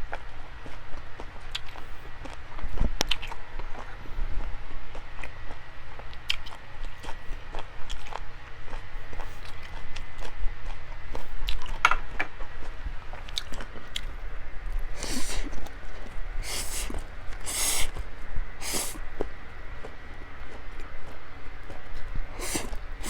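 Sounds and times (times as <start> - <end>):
person chewing and biting meat: 13.2 - 14.1, 14.8 - 18.0, 18.6 - 19.0, 22.0 - 23.0.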